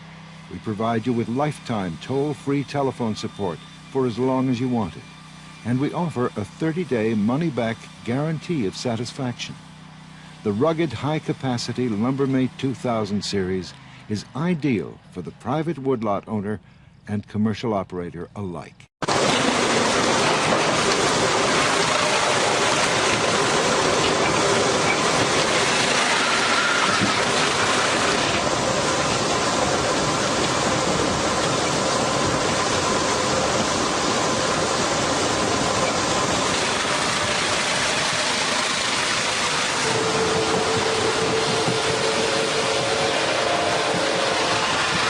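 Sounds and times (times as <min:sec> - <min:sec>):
heavy machinery running: 0:00.0 - 0:15.7, 0:19.0 - 0:45.0
faint steady hum: 0:00.0 - 0:18.9.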